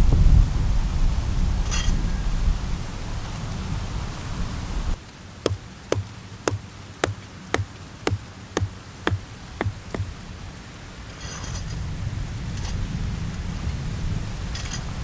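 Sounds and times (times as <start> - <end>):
sharp ticks with low thud: 5.5 - 10.1.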